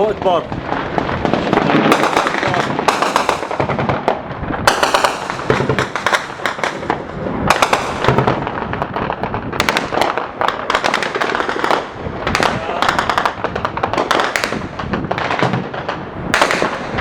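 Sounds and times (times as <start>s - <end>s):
rapid gunfire bursts: 1.5s - 4.0s.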